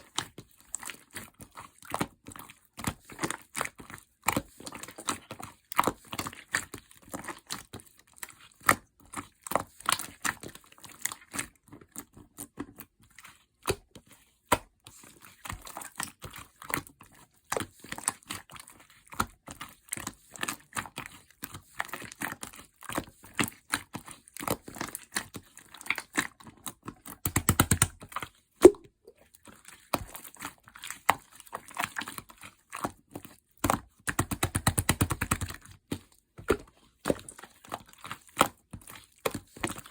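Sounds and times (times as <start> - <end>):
rapid popping: 27.3 - 28.0, 34.2 - 35.5.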